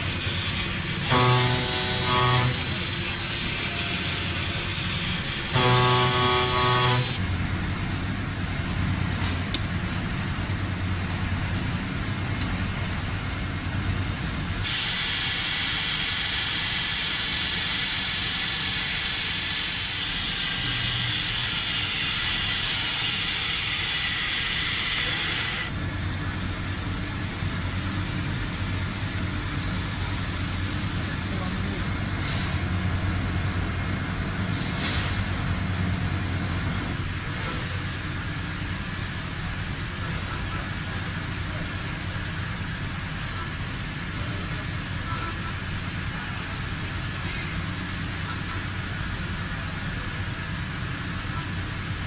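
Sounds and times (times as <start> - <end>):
machinery low hum: 0.0 - 52.0
loud hiss with high whine: 14.6 - 25.7.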